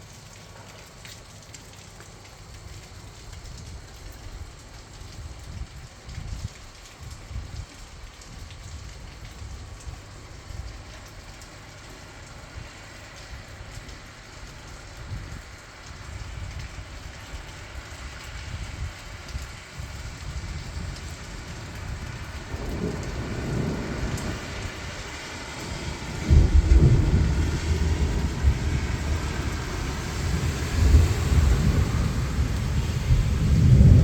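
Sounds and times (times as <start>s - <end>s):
steady rain: 0.0s - 34.0s
thunder rumbling: 18.5s - 34.0s
loud thunder clap: 22.5s - 25.1s, 26.1s - 34.0s.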